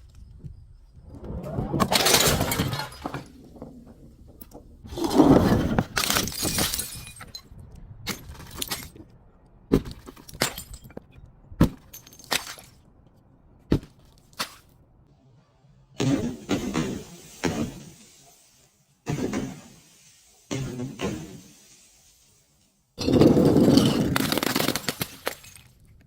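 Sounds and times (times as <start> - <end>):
glass bottle crashing: 1.8 - 3.7, 6.0 - 7.5, 9.9 - 11.1, 23.0 - 25.6
glass crunching: 1.9 - 3.7, 6.0 - 7.5, 23.0 - 25.8
sharp cracks of glass: 6.0 - 7.4, 23.8 - 25.8.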